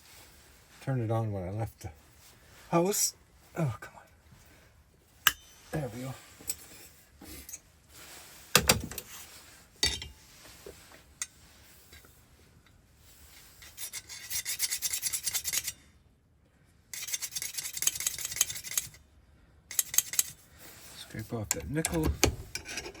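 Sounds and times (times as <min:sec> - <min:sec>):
metal file rasping on key: 0:13.6 - 0:15.8, 0:17.0 - 0:19.0, 0:19.7 - 0:20.4, 0:21.5 - 0:23.0.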